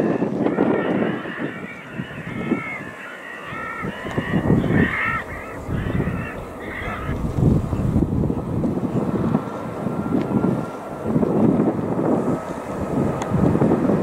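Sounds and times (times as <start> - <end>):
wind buffeting microphone: 0.0 - 14.0
birds short harsh calls: 0.1 - 7.9.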